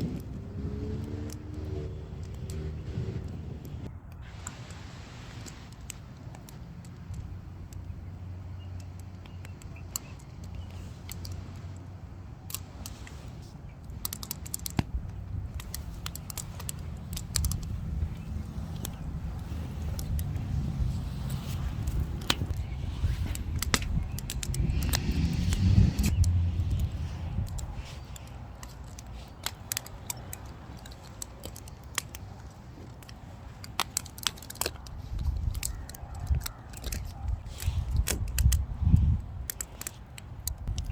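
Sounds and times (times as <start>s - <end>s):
steady low rumble: 0.0s - 5.1s, 6.0s - 34.1s
firewood crackling and popping: 12.4s - 40.9s.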